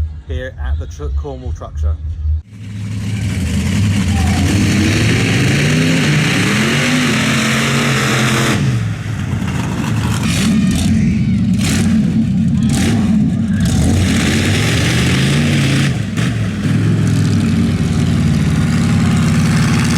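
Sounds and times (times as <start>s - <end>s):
heavy rush of exhaust: 2.5s - 19.9s
truck engine revving loudly: 2.5s - 19.9s.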